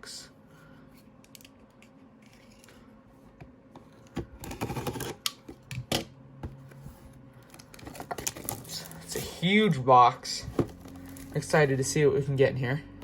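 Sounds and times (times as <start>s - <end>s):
cardboard packaging crackling: 7.4s - 9.2s, 10.6s - 11.4s.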